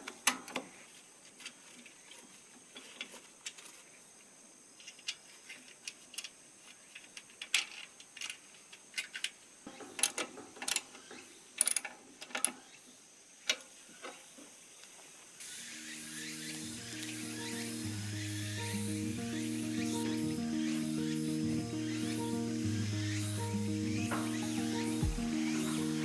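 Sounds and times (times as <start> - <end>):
clicks and knocks on metal parts: 4.9 - 11.0, 11.6 - 12.6
faint high whine: 15.4 - 26.0.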